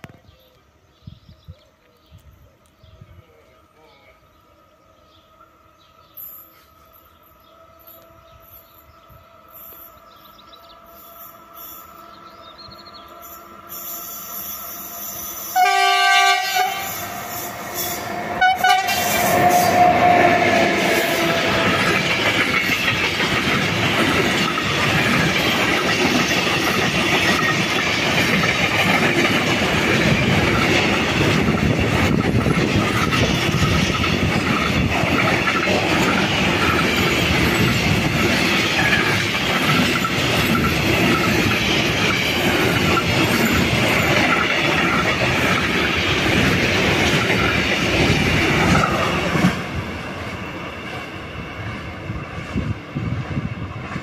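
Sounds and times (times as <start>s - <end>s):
train passing rumble: 1.8s - 54.0s
train horn: 13.0s - 21.9s
wheels clacking over rail joints: 17.7s - 52.5s.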